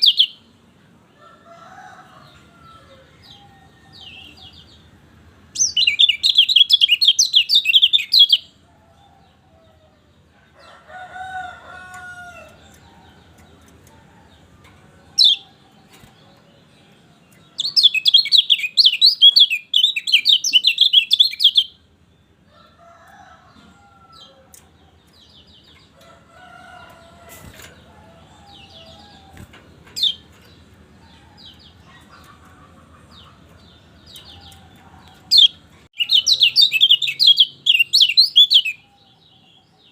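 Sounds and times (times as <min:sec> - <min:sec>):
bird chips and calls: 0:00.0 - 0:00.4, 0:05.6 - 0:08.5, 0:15.1 - 0:21.8, 0:27.0 - 0:39.0
songbird twittering song: 0:00.0 - 0:39.9.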